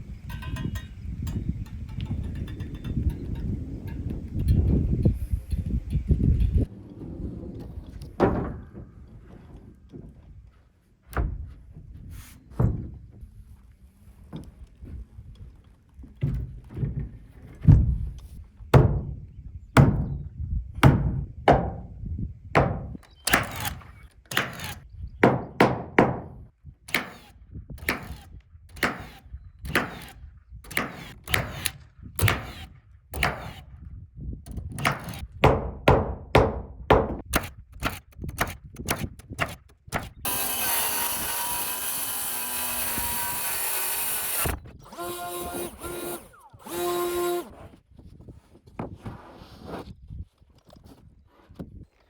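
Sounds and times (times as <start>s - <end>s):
hammer striking wood: 18.8s - 19.2s, 20.8s - 21.9s, 24.3s - 27.3s, 34.8s - 40.6s.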